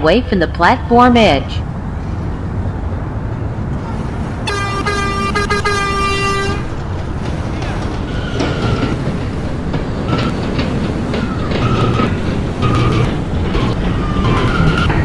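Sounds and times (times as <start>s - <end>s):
train rumbling into station: 0.0s - 15.0s
wheels clicking over rail joints: 1.4s - 15.0s
high wheel squeals: 3.6s - 15.0s
subway train horn: 3.6s - 15.0s.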